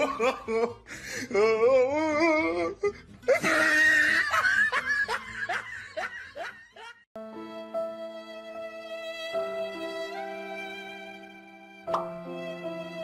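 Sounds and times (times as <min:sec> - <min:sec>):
people laughing: 0:00.0 - 0:00.8, 0:03.3 - 0:07.0.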